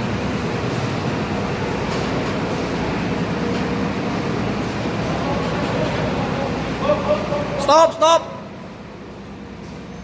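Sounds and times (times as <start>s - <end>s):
bus diesel engine running: 0.0s - 7.7s.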